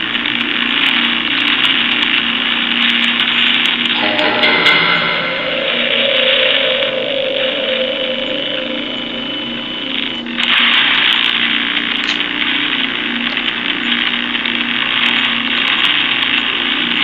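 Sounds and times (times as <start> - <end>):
radio static hiss: 0.0 - 17.0
choppy radio tones: 3.8 - 14.8.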